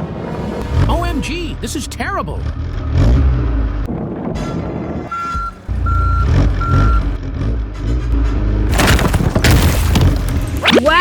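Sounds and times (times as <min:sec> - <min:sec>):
low engine rumble: 0:00.1 - 0:09.4
truck reversing alarm beeping: 0:04.4 - 0:07.2.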